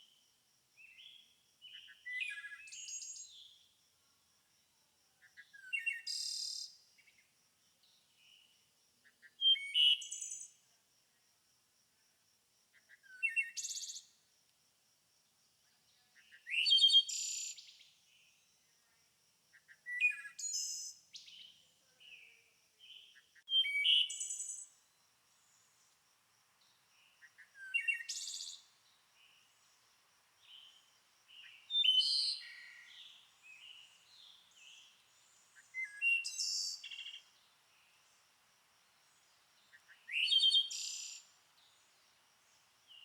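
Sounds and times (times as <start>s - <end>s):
songbird singing trills: 0.8s - 3.6s, 9.1s - 10.6s, 16.0s - 18.3s, 19.6s - 25.8s, 26.6s - 38.1s, 39.1s - 42.1s
soft bird chirps: 0.8s - 3.7s, 19.6s - 26.0s, 26.6s - 38.3s, 39.0s - 43.0s.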